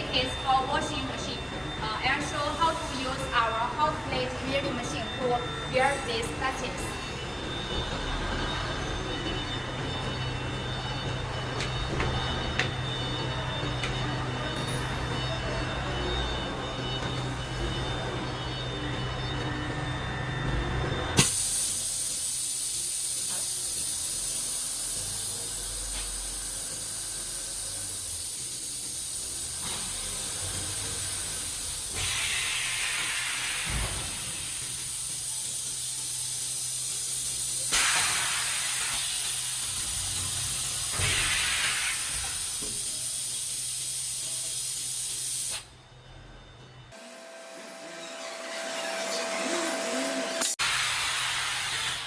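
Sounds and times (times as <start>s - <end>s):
welding machine hiss: 21.2s - 45.8s, 49.9s - 52.0s.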